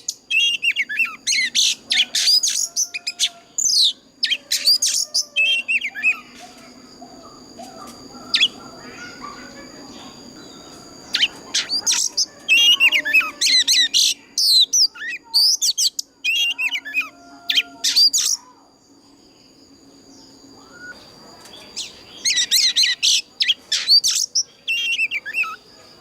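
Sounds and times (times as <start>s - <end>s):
bird singing whistles and chirps: 0.0s - 6.6s, 7.7s - 18.6s, 20.1s - 25.6s.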